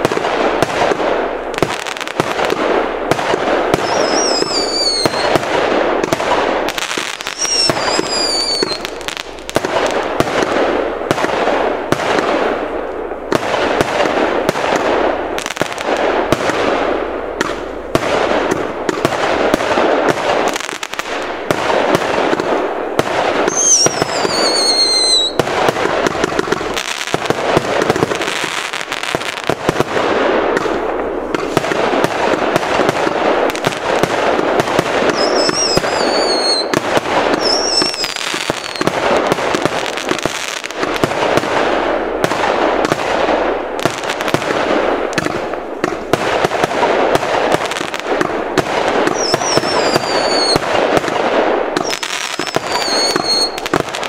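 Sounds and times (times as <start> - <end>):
firework barrage with crackle: 0.0 - 54.0
falling firework whistles: 3.7 - 5.4, 7.0 - 9.0, 23.4 - 25.4, 35.1 - 38.9, 49.0 - 50.6, 51.8 - 53.7.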